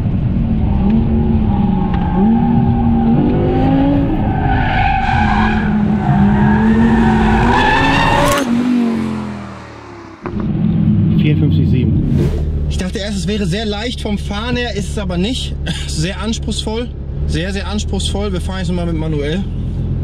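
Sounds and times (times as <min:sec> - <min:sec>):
car engine revving: 0:00.0 - 0:19.9
tyres squealing: 0:04.1 - 0:08.6.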